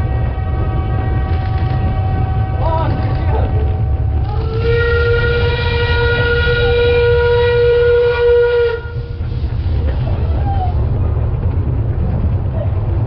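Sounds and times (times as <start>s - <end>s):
low rumble: 0.0s - 13.0s
locomotive whistle blast: 4.4s - 9.2s.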